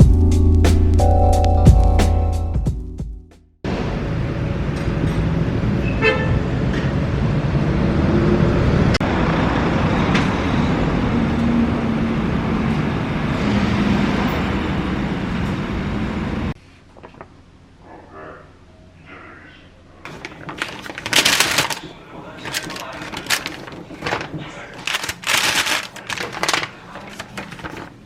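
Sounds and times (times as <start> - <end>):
road traffic rumble: 3.7 - 16.6.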